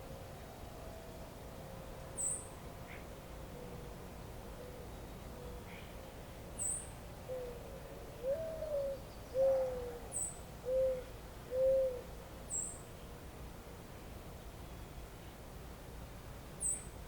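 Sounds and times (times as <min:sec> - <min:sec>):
low outdoor hiss: 0:00.0 - 0:17.0
bird hooting or cooing: 0:02.2 - 0:04.0, 0:04.6 - 0:06.0, 0:06.6 - 0:12.7
small bird high chirps: 0:10.1 - 0:10.4, 0:12.5 - 0:12.8, 0:16.6 - 0:16.9.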